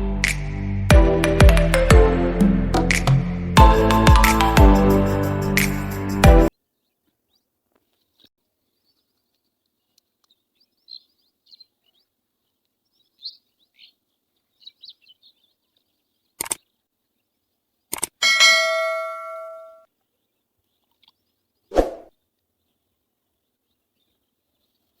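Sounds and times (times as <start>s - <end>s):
faint bird chirps: 6.7s - 17.3s
sharp click: 16.4s - 16.6s, 17.9s - 18.2s.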